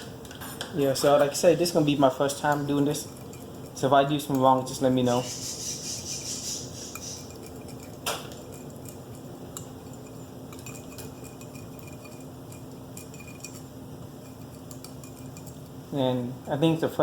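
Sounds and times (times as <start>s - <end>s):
spoon clinking against dish: 6.8s - 15.6s.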